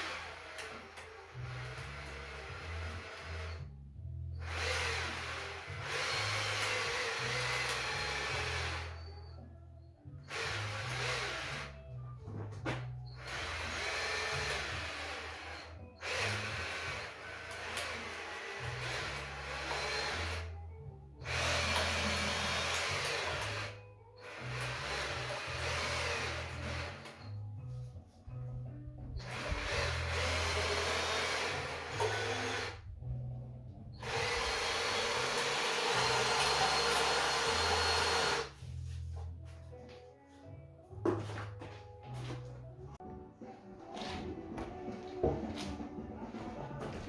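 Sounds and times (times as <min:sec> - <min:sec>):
background music with bass line: 0:01.4 - 0:47.0
power tool whirring: 0:04.4 - 0:09.3, 0:10.2 - 0:11.8, 0:13.1 - 0:20.5, 0:21.2 - 0:27.4, 0:29.1 - 0:33.0, 0:33.9 - 0:38.6.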